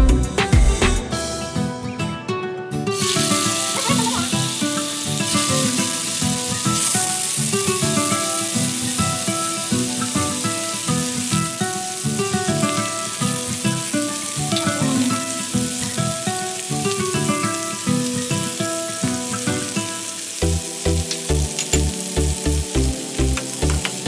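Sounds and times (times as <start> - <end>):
background music with steady beat: 0.0 - 2.2, 20.4 - 24.0
chicken sizzling in oil: 2.9 - 24.0.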